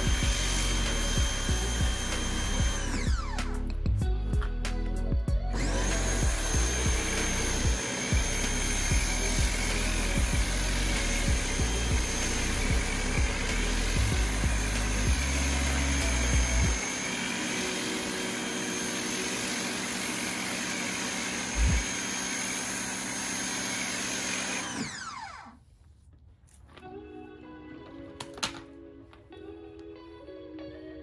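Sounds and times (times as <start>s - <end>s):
pressure washer motor whine: 0.0s - 3.6s, 5.5s - 25.6s.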